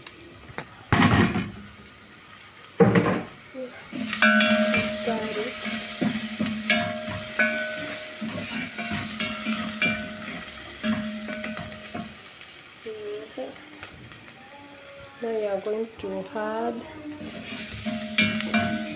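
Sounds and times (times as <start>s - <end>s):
onions sizzling in oil: 0.0s - 18.9s
spoon scraping metal pot: 4.0s - 12.1s, 17.2s - 18.9s.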